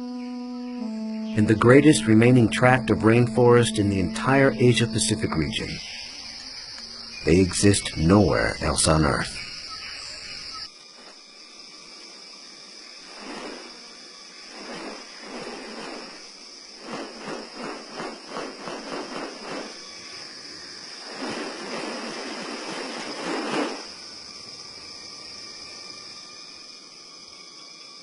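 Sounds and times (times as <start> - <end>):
insects droning: 0.0 - 28.0
rustling bursts: 13.0 - 24.0.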